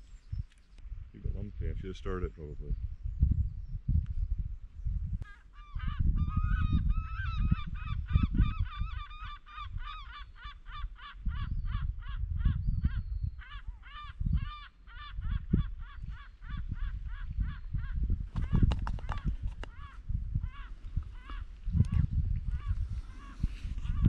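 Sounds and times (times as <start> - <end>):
wind buffeting microphone: 0.0 - 24.0
birds calling: 5.2 - 24.0.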